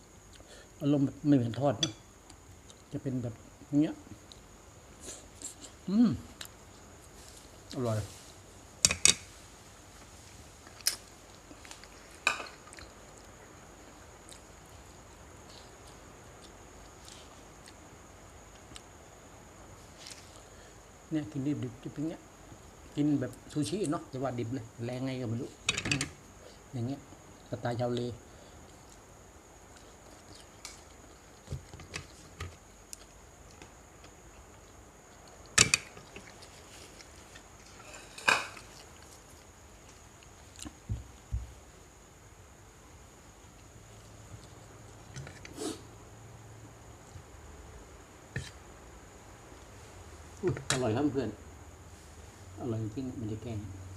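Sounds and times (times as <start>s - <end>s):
faint high-pitched whine: 0.0s - 53.9s.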